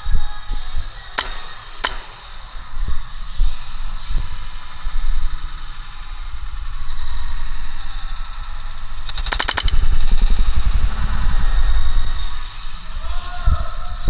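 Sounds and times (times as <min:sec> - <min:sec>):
airsoft gun full-auto burst: 0:01.2 - 0:02.8, 0:09.1 - 0:11.0.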